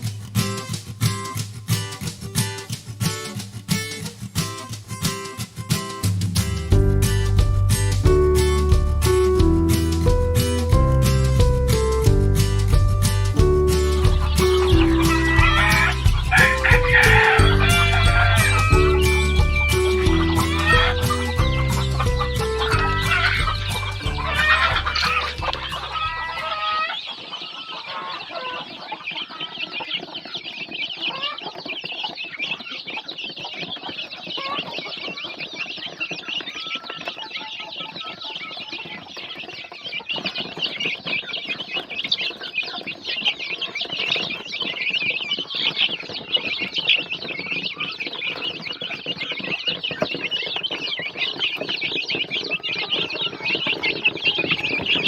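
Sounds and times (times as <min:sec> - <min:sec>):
music: 0:00.0 - 0:26.9
chicks peeping: 0:00.0 - 0:55.0.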